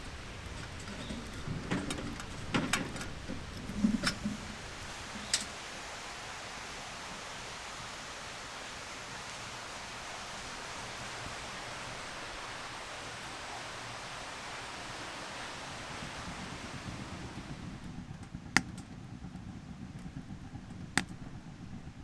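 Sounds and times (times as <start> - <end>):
rushing hiss of outdoor ambience: 0.0 - 18.2.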